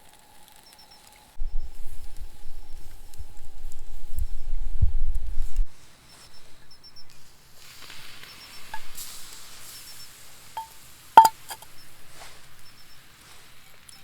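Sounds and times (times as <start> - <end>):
light ringing clinks: 10.6 - 11.6.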